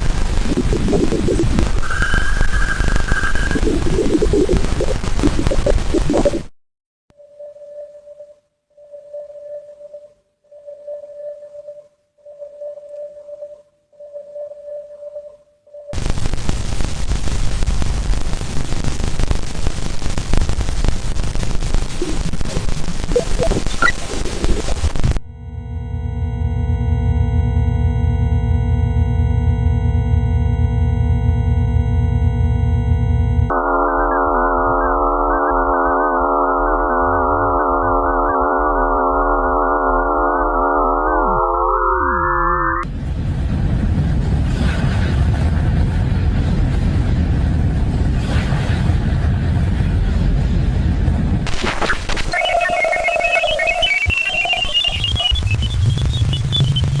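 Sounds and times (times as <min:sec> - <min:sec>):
deep rumble: 0:00.0 - 0:06.5, 0:42.8 - 0:51.5
dense crackling static: 0:00.0 - 0:06.5, 0:15.9 - 0:42.1, 0:42.8 - 0:57.0
steady pure tone: 0:00.0 - 0:06.5, 0:07.2 - 0:43.0, 0:52.3 - 0:57.0.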